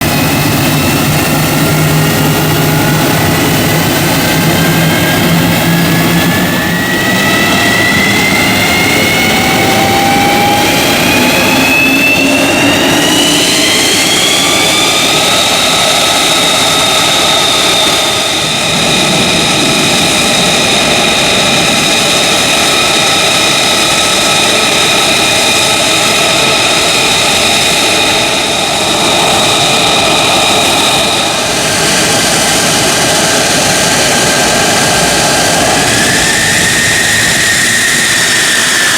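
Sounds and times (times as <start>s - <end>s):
jet engine whining: 0.0s - 38.9s.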